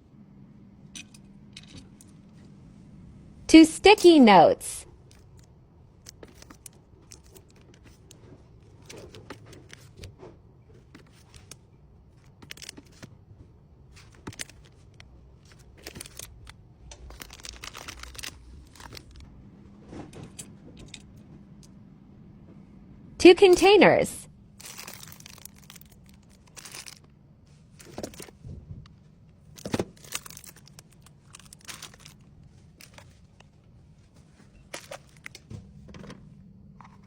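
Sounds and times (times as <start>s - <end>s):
plastic wrappers crinkling: 10.8s - 19.2s, 24.5s - 28.4s, 29.4s - 33.6s, 34.3s - 35.5s.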